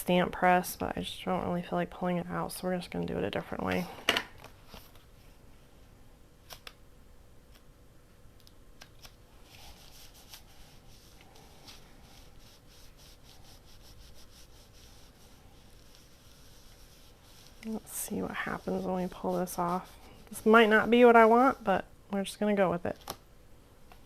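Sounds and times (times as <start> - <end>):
soft rubbing strokes: 9.3 - 21.9.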